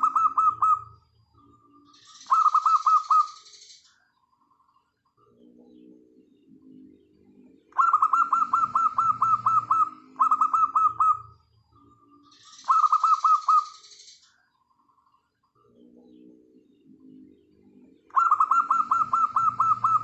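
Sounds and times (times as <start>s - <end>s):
rapid staccato bird calls: 0.0s - 1.0s, 2.0s - 3.8s, 7.7s - 11.5s, 12.3s - 14.2s, 18.1s - 20.0s
doves cooing: 0.0s - 1.1s, 1.7s - 3.4s, 7.3s - 11.5s, 12.1s - 13.8s, 17.0s - 20.0s.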